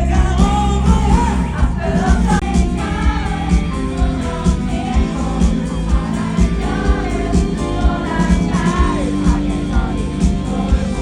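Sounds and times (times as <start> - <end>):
live pop-rock band: 0.0 - 11.0
person singing: 0.0 - 11.0
steady drum beat: 0.0 - 11.0.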